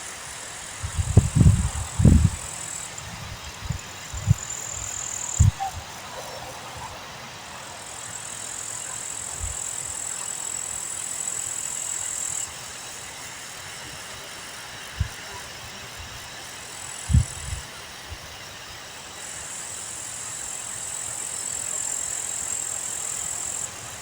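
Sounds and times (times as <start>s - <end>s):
wind gusting across microphone: 0.4s - 7.1s, 17.1s - 18.3s.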